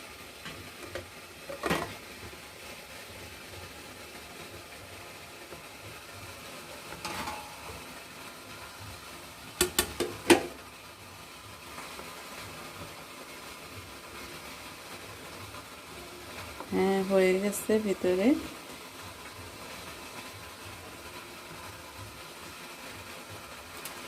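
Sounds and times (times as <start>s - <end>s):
plate and utensils clinking: 7.0s - 7.6s
kitchenware knock: 9.6s - 10.5s.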